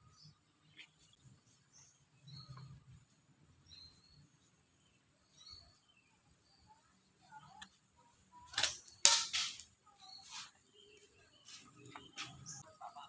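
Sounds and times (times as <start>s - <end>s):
slingshot band cracks: 8.5s - 9.7s.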